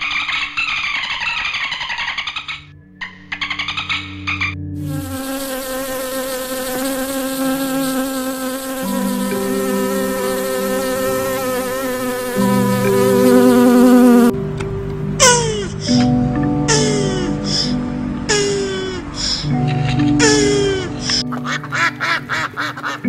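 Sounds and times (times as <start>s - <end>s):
wasps buzzing: 4.8s - 14.4s, 16.7s - 23.0s.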